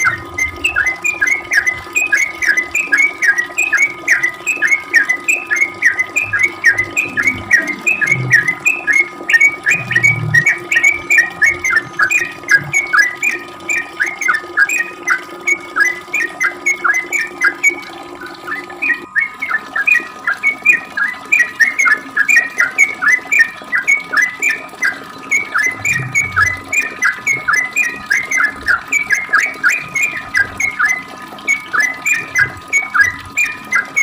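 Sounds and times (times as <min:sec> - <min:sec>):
bird chirping: 0:00.0 - 0:14.8.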